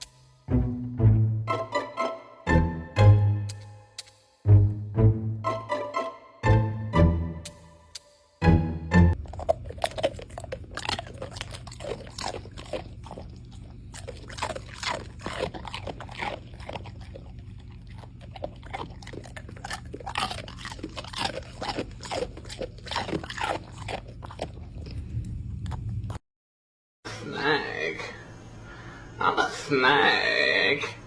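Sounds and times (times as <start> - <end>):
dog chewing and crunching: 9.2 - 25.9.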